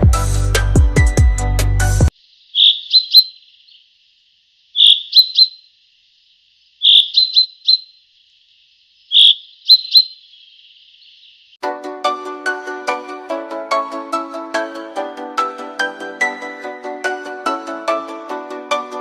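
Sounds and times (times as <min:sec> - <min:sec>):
bird chirping: 0:02.1 - 0:11.6.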